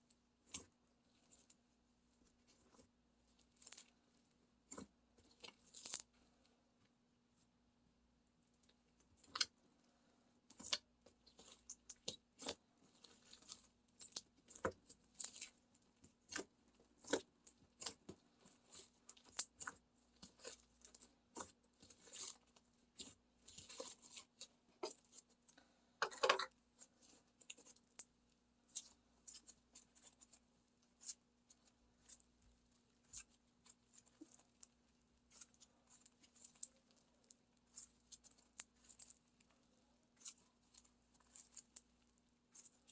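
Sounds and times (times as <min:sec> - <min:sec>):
slime being squished crackling: 0:10.5 - 0:25.3, 0:26.8 - 0:42.9.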